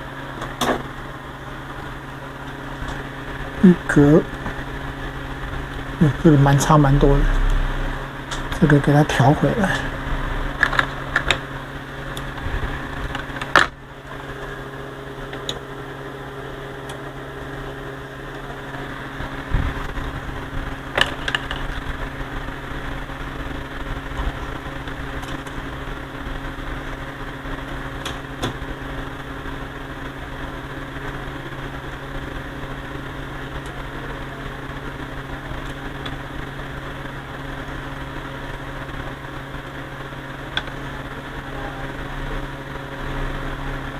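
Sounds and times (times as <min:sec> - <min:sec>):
electronics humming: 0:00.0 - 0:43.9.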